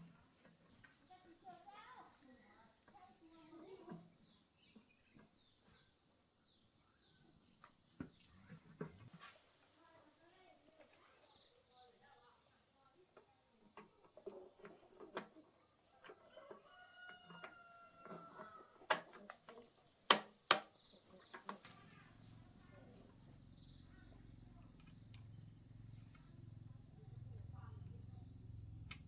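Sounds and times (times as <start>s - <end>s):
rooster crowing: 16.3s - 18.8s
low steady hum: 21.6s - 29.0s.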